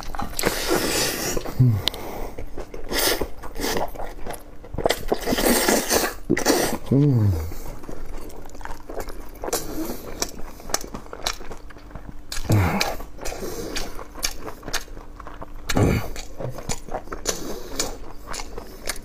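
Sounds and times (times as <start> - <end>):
person chewing with wet smacking: 0.0 - 19.0
low mouth sounds: 0.6 - 2.2, 5.4 - 8.0, 12.3 - 13.9, 15.7 - 18.0.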